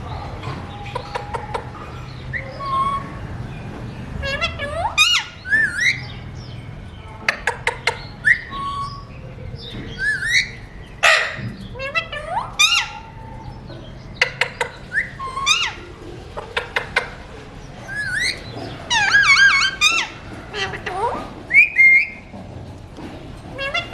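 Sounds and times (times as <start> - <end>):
parakeet squawk: 4.2 - 6.2, 9.9 - 13.6, 14.2 - 22.2, 23.6 - 23.9.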